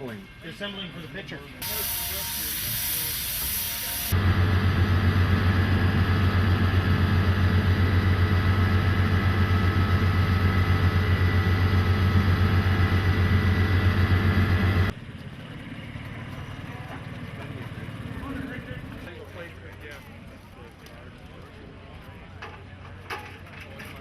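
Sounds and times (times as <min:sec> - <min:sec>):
small engine idling: 0:04.1 - 0:19.8.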